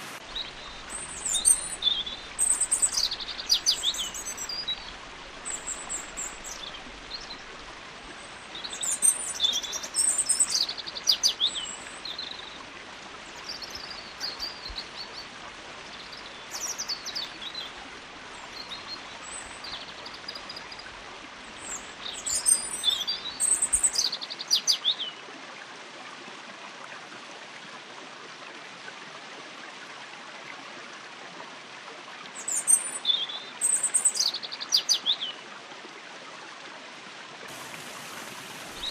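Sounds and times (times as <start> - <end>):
stream water flowing: 0.0 - 38.9
whistled songbird song: 0.3 - 7.4, 8.5 - 12.6, 13.4 - 15.2, 16.0 - 17.7, 21.6 - 25.2, 32.4 - 35.4.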